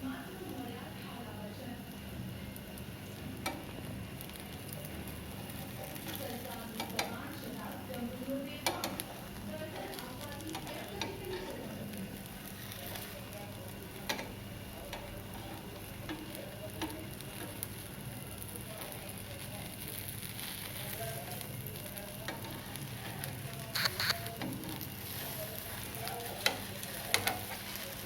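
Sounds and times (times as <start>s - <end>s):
batter sizzling in oil: 0.0s - 28.0s
sharp clicks: 23.8s - 24.2s.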